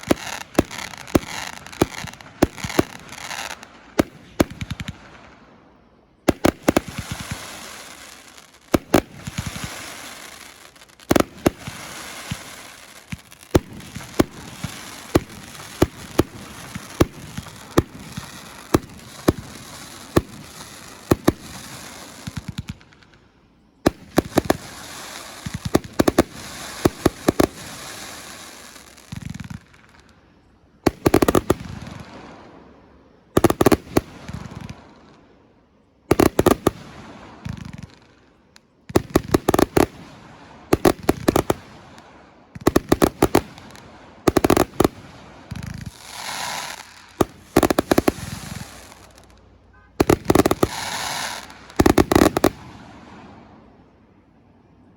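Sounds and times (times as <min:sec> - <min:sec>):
fireworks reports: 0:00.0 - 0:05.3, 0:06.2 - 0:34.9, 0:36.1 - 0:54.2
fireworks hiss: 0:00.0 - 0:05.4, 0:06.3 - 0:30.2, 0:30.8 - 0:35.2, 0:36.1 - 0:53.7.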